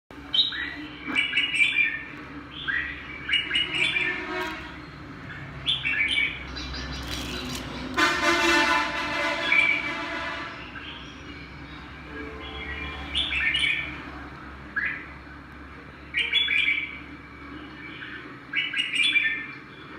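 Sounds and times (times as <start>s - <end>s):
songbird chirping and whistling: 0.3s - 4.2s, 16.1s - 17.0s, 17.9s - 19.6s
buzzy horn-like tone: 3.6s - 4.8s, 8.0s - 10.6s.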